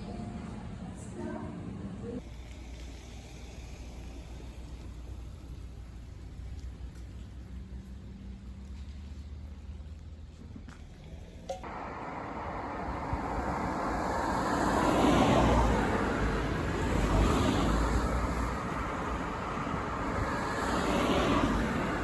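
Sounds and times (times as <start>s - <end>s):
steady low road rumble: 0.0s - 22.0s
vehicles passing: 0.0s - 22.0s.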